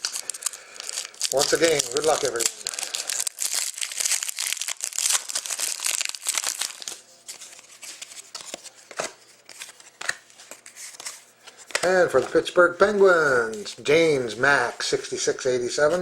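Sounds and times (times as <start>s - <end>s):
card pack wrapper crinkling: 0.0s - 12.4s
cards rustling and clicking: 0.0s - 12.6s.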